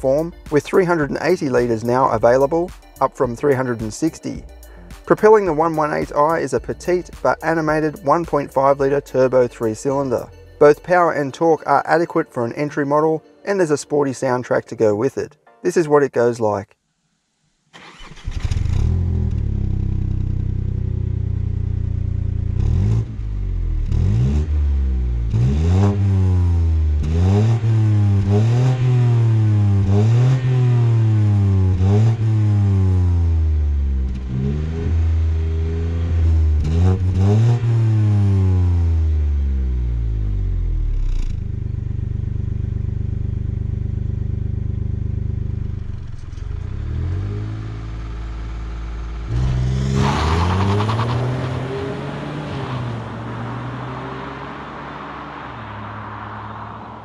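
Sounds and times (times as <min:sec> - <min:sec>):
car engine idling and revving: 0:00.0 - 0:11.1, 0:17.8 - 0:57.0.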